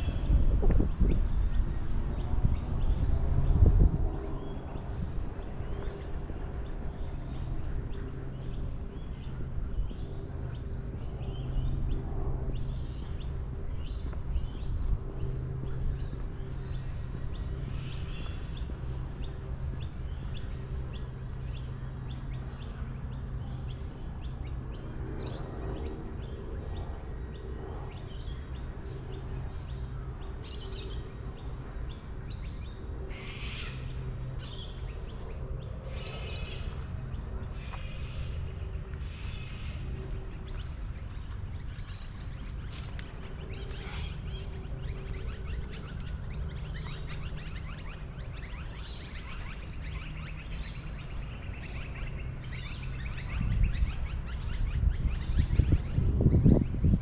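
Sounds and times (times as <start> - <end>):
birds chirping: 0.0 - 57.0
steady low rumble: 0.0 - 57.0.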